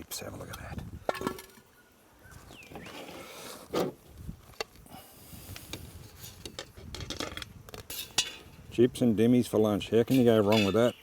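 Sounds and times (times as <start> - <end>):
utensils and dishes clinking: 10.1 - 11.0.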